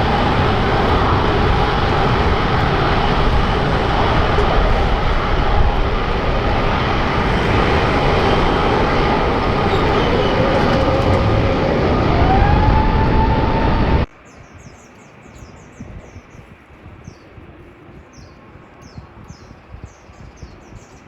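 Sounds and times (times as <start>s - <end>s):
jet engines whining: 0.0s - 14.1s.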